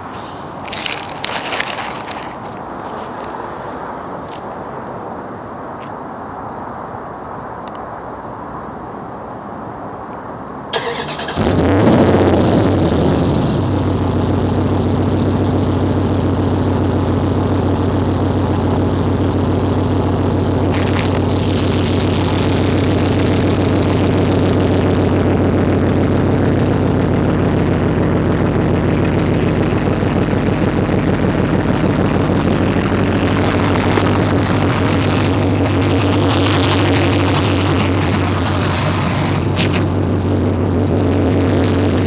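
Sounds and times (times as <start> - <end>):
pickup engine idling: 10.8 - 42.0.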